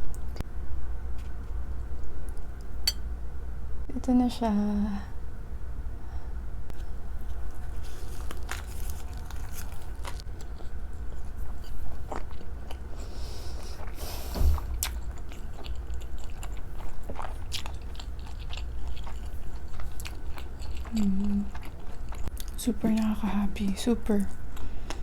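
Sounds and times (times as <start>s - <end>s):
steady low hum: 0.0s - 25.0s
biting and chewing food: 7.2s - 23.2s.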